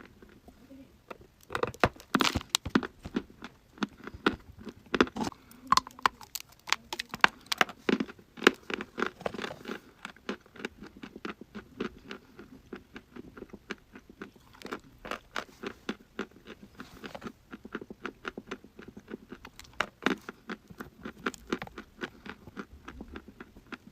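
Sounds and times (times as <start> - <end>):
chalk being chewed: 2.6 - 23.9.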